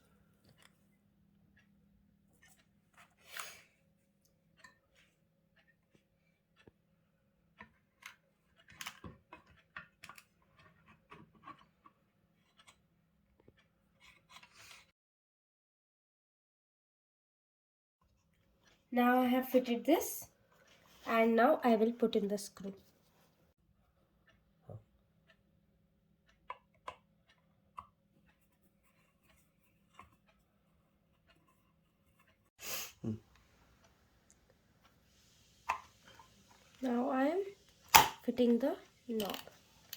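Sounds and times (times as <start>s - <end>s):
plastic parts clicking and scraping: 7.6s - 12.8s, 39.1s - 39.9s.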